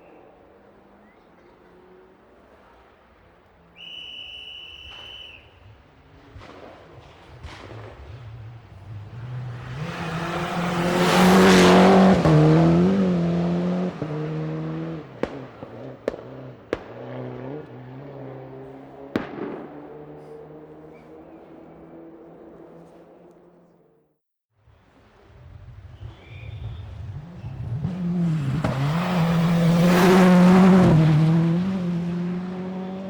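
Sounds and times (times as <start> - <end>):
sharp cracks: 6.1 - 9.2, 14.8 - 21.9
racing car engine passing: 6.2 - 24.0, 25.8 - 33.0.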